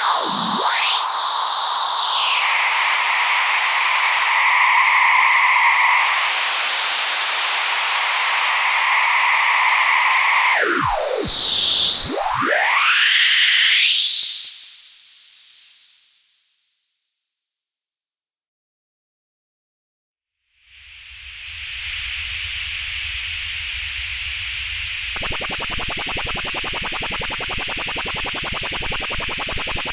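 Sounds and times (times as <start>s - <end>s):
resonant filter sweeping hiss: 21.9s - 29.9s.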